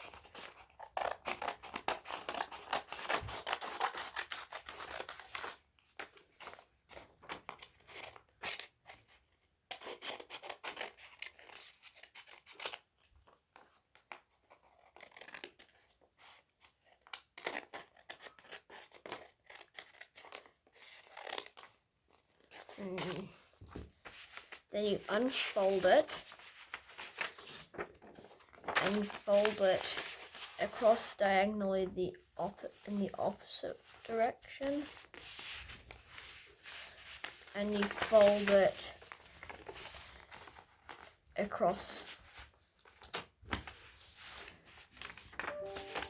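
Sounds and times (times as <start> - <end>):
scissors snipping paper: 0.0 - 6.2, 9.7 - 12.9, 14.4 - 16.0, 16.9 - 23.4
paper handling: 17.4 - 31.0, 33.8 - 41.2, 42.0 - 46.0.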